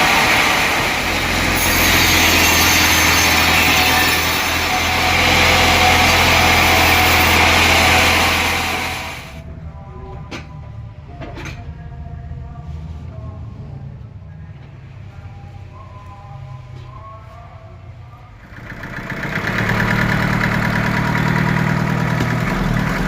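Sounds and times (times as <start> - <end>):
sawmill saw cutting wood: 0.0 - 9.4, 18.6 - 23.0
low hum: 0.0 - 10.9.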